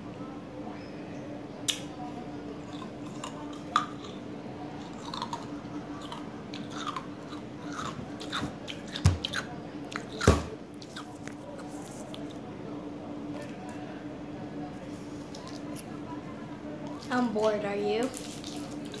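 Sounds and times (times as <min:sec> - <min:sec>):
person chewing ice pop: 0:02.7 - 0:04.2, 0:04.8 - 0:11.4.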